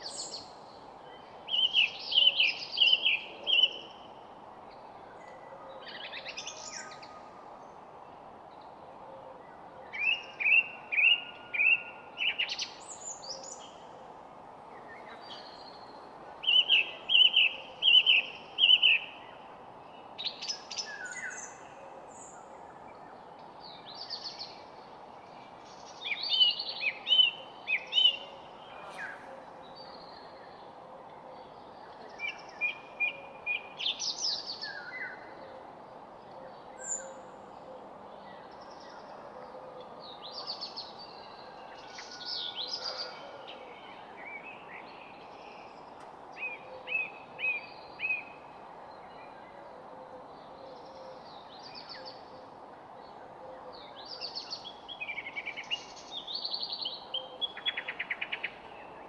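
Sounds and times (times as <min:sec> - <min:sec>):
background hiss: 0:00.0 - 0:09.0, 0:09.6 - 0:39.2
songbirds singing: 0:00.0 - 0:14.1, 0:14.7 - 0:59.0.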